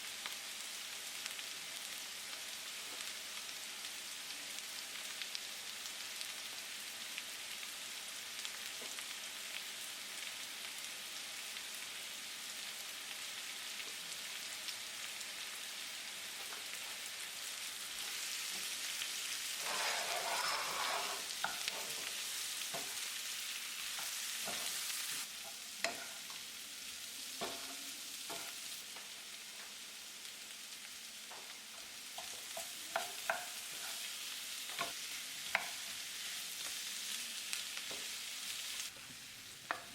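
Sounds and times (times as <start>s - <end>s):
food sizzling in hot oil: 0.0s - 39.9s
utensil stirring in pan: 18.0s - 26.6s, 27.2s - 29.8s, 31.3s - 36.8s.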